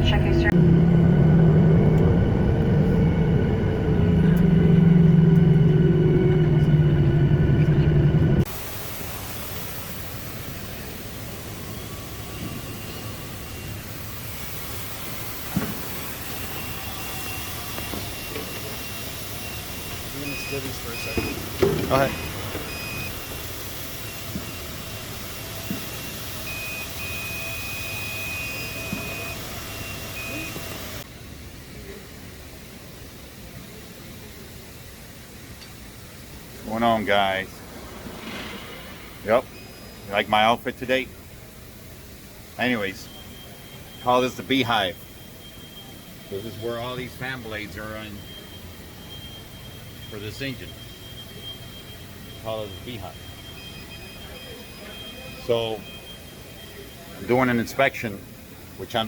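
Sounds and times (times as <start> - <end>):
electronic warning beeps: 0.0 - 8.4, 10.7 - 31.0, 38.2 - 41.1, 42.5 - 59.0
cabin hum: 0.0 - 31.1
jet engines rumbling: 0.0 - 59.0.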